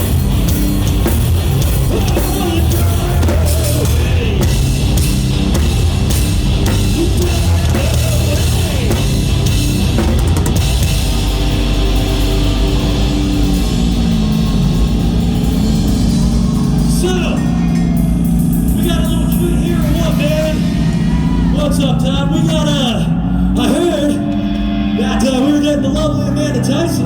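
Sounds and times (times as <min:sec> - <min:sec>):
live rock band playing: 0:00.0 - 0:21.4.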